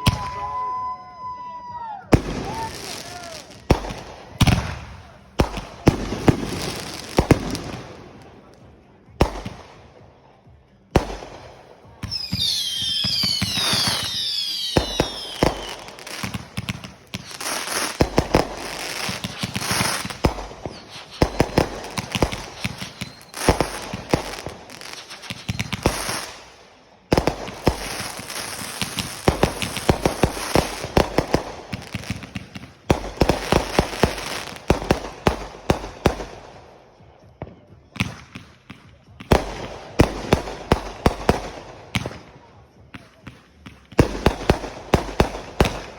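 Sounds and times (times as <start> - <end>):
firework whistles falling in pitch: 0.0 - 3.4, 19.0 - 23.8
firework crackling pops: 11.0 - 36.4.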